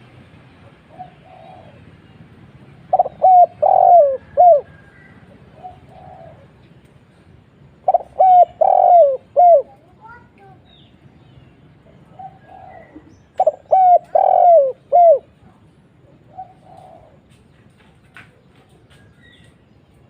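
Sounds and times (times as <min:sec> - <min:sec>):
dove cooing: 0:00.8 - 0:02.0, 0:02.8 - 0:06.6, 0:07.7 - 0:09.9, 0:12.0 - 0:17.3.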